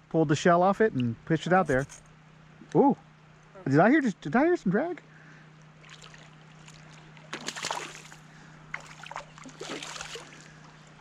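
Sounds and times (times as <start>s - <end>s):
low steady hum: 0.0s - 11.0s
faint moving water: 5.0s - 11.0s
water splashing: 5.8s - 10.6s.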